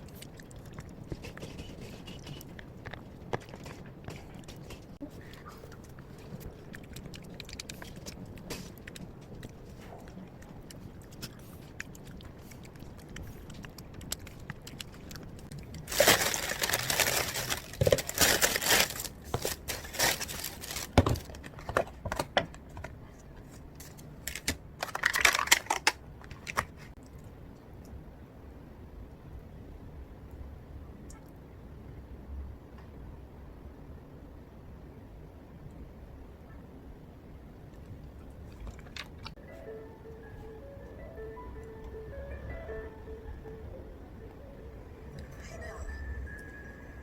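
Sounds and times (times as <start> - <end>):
crinkling and rustling: 0.0 - 27.0.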